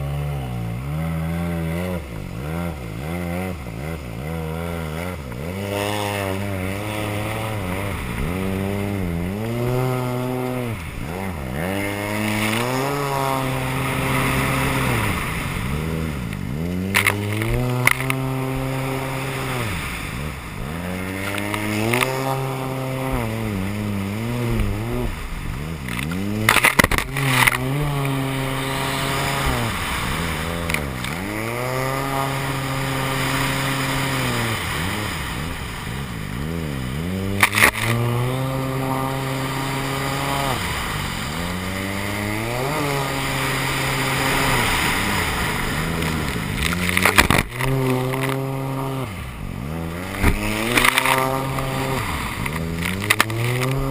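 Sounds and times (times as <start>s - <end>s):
jet ski engine revving: 0.0s - 53.9s.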